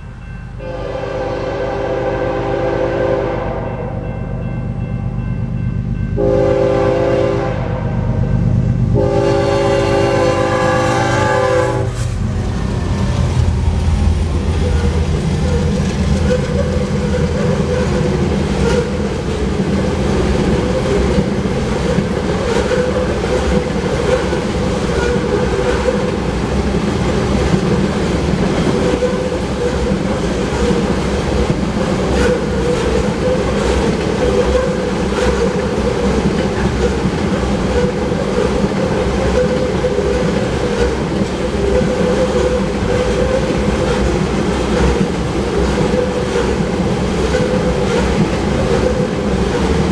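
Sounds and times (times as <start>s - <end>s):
diesel locomotive horn: 0.6s - 4.2s, 6.2s - 12.1s
diesel engines passing: 8.4s - 49.9s
wheels clacking over rail joints: 11.4s - 49.9s.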